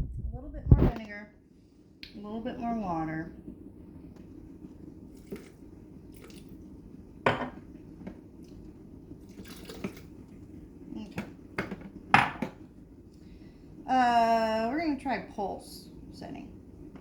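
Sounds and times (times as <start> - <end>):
liquid pouring: 9.2 - 10.1.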